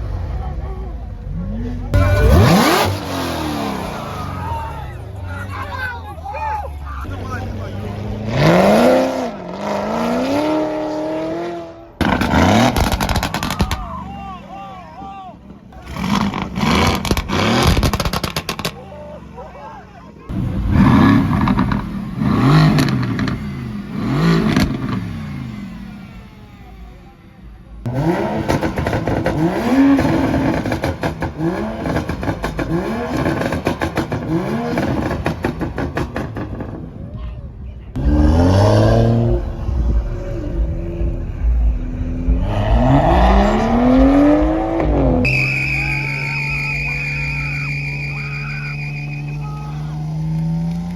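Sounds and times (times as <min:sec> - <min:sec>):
car engine accelerating hard: 0:00.0 - 0:14.3, 0:15.5 - 0:19.5, 0:20.3 - 0:50.9
exhaust crackles and pops: 0:12.0 - 0:14.0, 0:15.4 - 0:18.8, 0:20.3 - 0:23.5, 0:28.4 - 0:38.0, 0:39.3 - 0:50.9.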